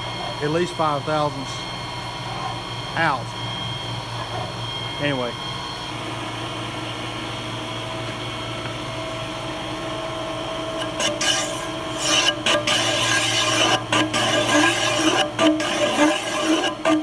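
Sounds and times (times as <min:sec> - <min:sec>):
lathe motor running: 0:00.0 - 0:17.0
cutting tool rasping on steel: 0:10.6 - 0:17.0.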